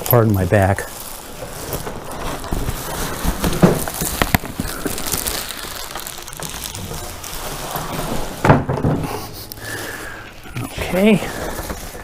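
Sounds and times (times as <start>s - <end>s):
styrofoam rustling and scraping: 0.0s - 12.0s
sharp clicks and snaps: 3.8s - 7.9s.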